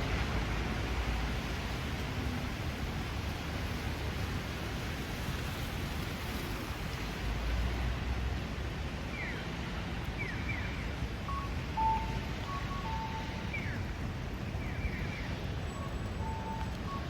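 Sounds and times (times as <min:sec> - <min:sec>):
train station background noise: 0:11.2 - 0:17.0
electronic beeps: 0:11.3 - 0:13.8.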